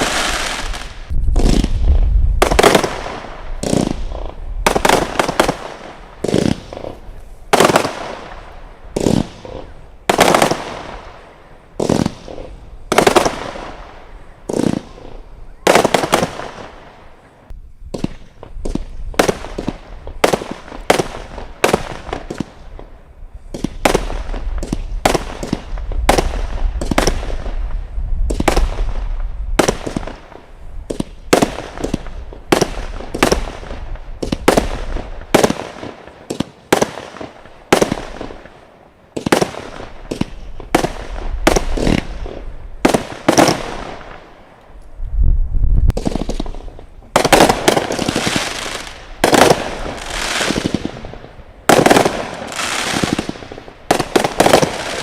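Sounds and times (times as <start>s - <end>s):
fireworks banging: 0.0s - 45.0s, 45.8s - 55.0s.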